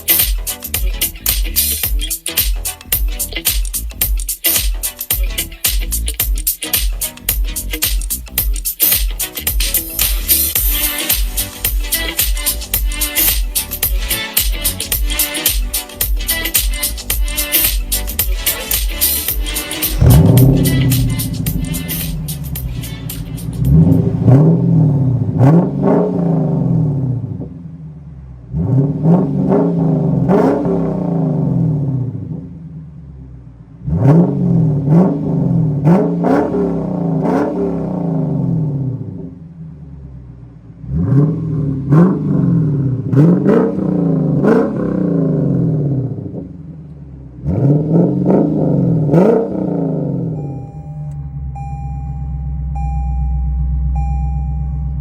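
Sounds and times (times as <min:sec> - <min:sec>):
exhaust cracks at shifts: 0:00.0 - 0:50.5
car engine accelerating hard: 0:19.5 - 0:52.0.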